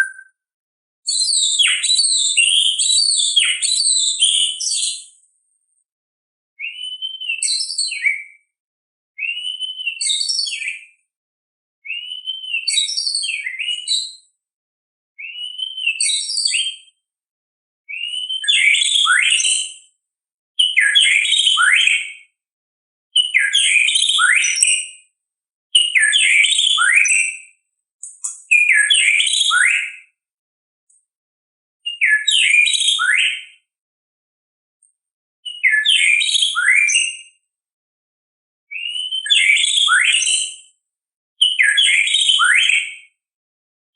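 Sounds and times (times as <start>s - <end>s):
songbird singing phrases: 0.0s - 0.3s, 1.1s - 5.2s, 6.6s - 8.5s, 9.2s - 11.0s, 11.9s - 14.2s, 15.2s - 16.9s, 17.9s - 19.7s, 20.6s - 22.1s, 23.2s - 24.9s, 25.7s - 27.4s, 28.0s - 29.9s, 31.9s - 33.4s, 35.4s - 37.2s, 38.7s - 40.5s, 41.4s - 42.9s.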